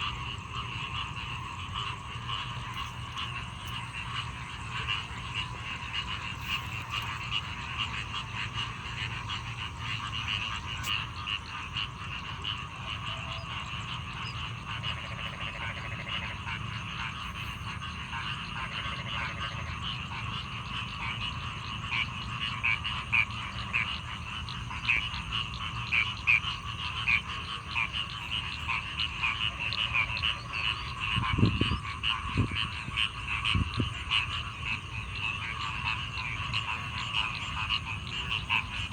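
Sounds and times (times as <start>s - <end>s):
frogs croaking in chorus: 0.0s - 38.9s.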